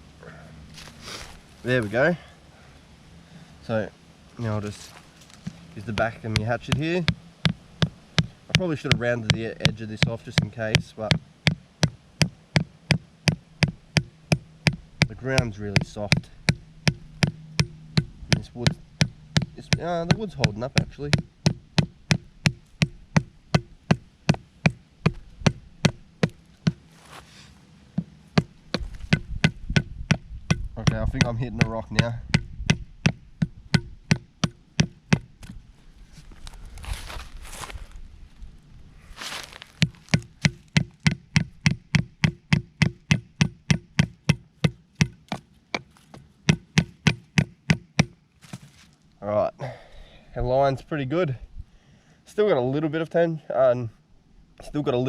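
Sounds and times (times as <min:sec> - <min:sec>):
hatchet pounding wooden stake: 0:05.4 - 0:26.9, 0:28.0 - 0:35.6, 0:39.7 - 0:48.6.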